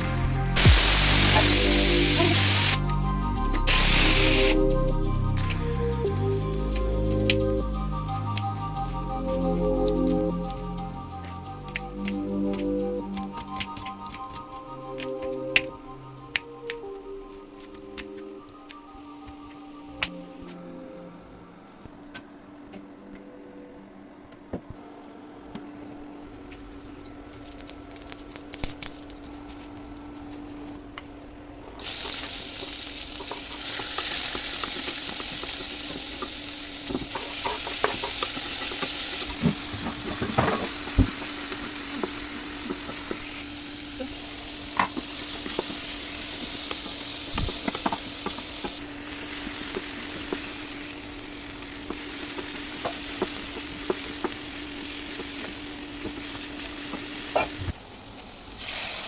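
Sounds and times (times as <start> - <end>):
food sizzling in hot oil: 0.6 - 2.8, 3.7 - 4.6, 31.8 - 59.0
utensil clinking and scraping: 33.2 - 43.3.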